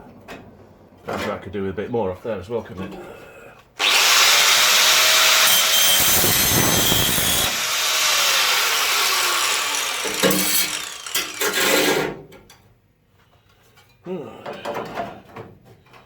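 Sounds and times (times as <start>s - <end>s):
angle grinder cutting metal: 3.8s - 11.9s.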